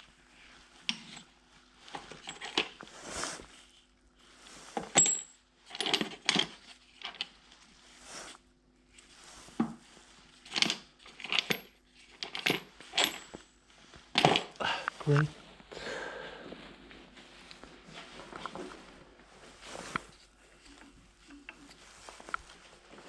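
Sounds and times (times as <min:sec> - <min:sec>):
metal parts and tools clinking: 0:04.9 - 0:06.6, 0:10.5 - 0:13.4.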